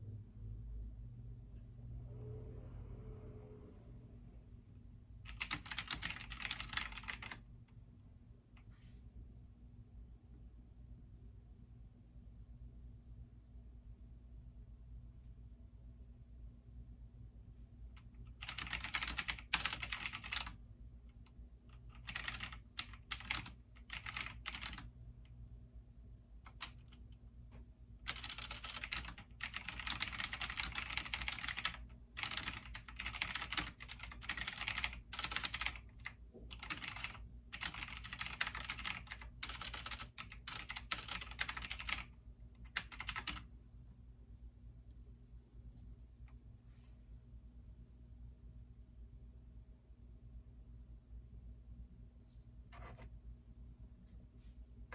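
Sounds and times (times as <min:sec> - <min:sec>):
computer keyboard typing: 0:05.3 - 0:07.5, 0:18.3 - 0:20.6, 0:21.7 - 0:24.9, 0:26.5 - 0:27.0, 0:28.0 - 0:43.5.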